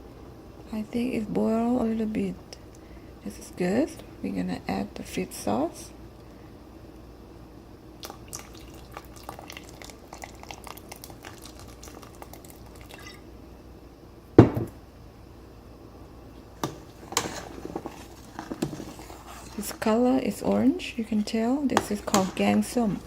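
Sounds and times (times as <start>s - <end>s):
broth boiling and bubbling: 7.8s - 13.4s, 16.3s - 23.0s
liquid pouring into pot: 8.0s - 13.2s
knocks on pot: 14.4s - 14.7s.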